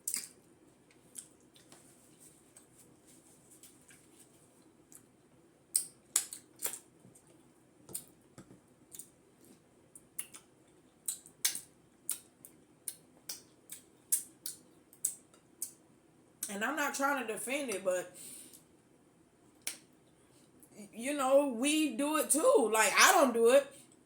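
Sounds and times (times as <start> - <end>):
person chewing with wet smacks: 0.0 - 2.9, 3.5 - 15.8.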